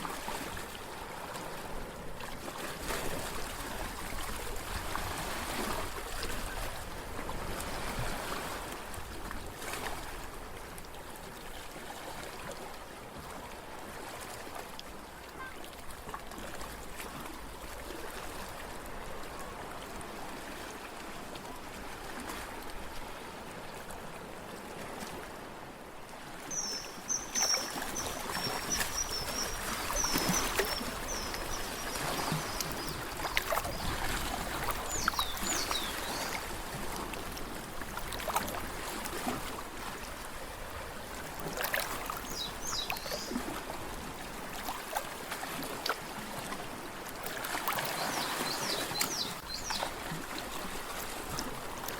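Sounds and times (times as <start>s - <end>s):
water lapping at shore: 0.0s - 51.9s
small water splashes: 26.4s - 51.9s
bird chirping: 26.5s - 33.8s.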